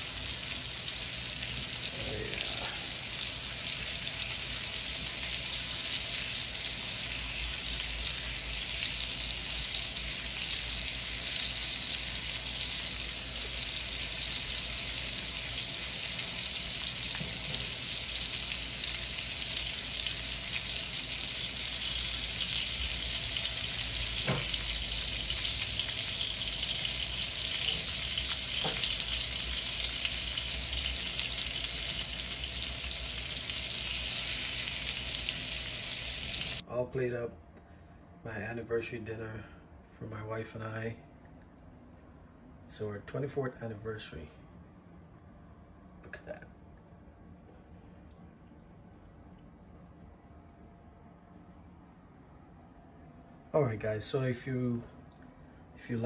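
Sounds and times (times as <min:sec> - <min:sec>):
onion and garlic sizzling in oil: 0:00.0 - 0:36.6.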